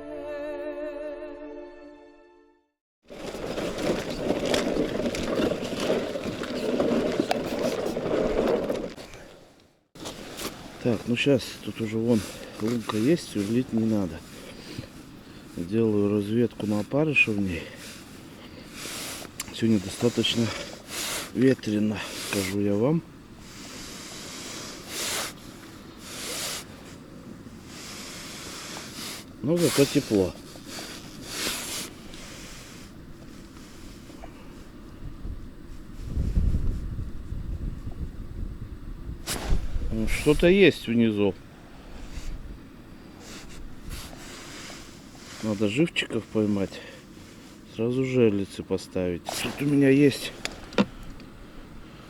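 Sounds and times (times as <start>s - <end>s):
music: 0.0s - 2.8s
sharp clicks and crunches: 3.1s - 10.6s
short hissing bursts: 17.7s - 22.6s, 23.4s - 27.0s, 27.6s - 32.9s, 39.2s - 40.4s, 43.1s - 45.8s, 49.2s - 50.8s
wind buffeting microphone: 34.7s - 44.2s.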